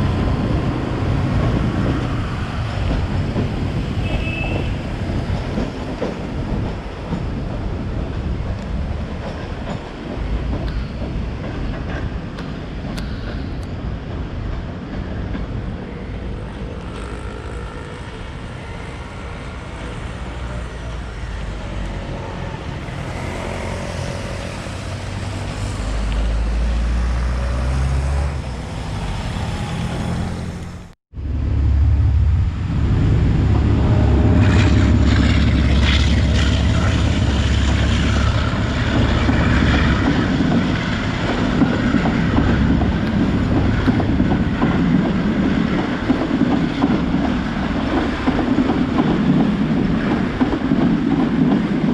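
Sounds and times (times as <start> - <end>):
train wheels rumbling on rails: 0.0 - 51.9
diesel engine drone: 25.7 - 39.7.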